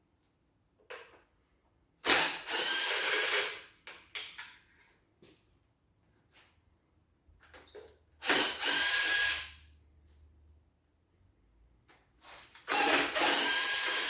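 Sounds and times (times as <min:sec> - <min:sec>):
cordless power tool whirring: 0:02.1 - 0:03.6, 0:08.2 - 0:09.5, 0:12.6 - 0:14.0.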